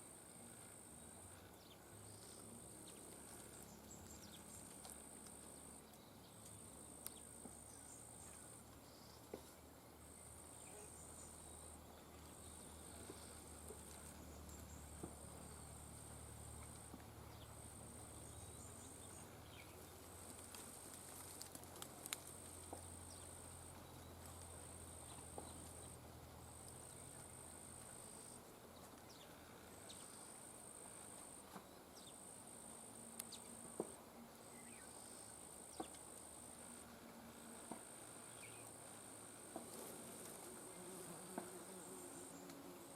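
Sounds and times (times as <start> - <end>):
faint clicks: 20.3 - 22.9.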